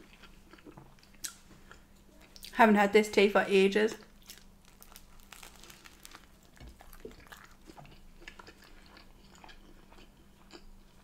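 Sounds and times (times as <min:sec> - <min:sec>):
chewing and biting bread: 0:04.0 - 0:11.0.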